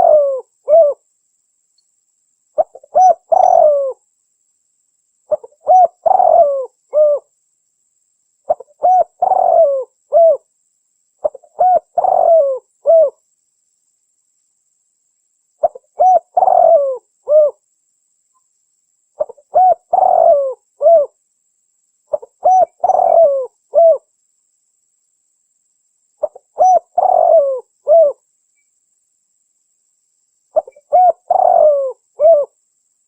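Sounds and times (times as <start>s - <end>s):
dove cooing: 0.0s - 1.0s, 2.6s - 4.0s, 5.3s - 7.3s, 8.5s - 10.4s, 11.2s - 13.2s, 15.6s - 17.6s, 19.2s - 21.2s, 22.1s - 24.1s, 26.2s - 28.2s, 30.6s - 32.6s.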